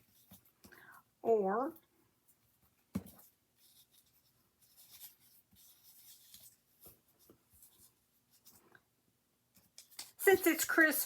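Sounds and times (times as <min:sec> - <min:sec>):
paper rustling and rubbing: 0:02.4 - 0:08.7.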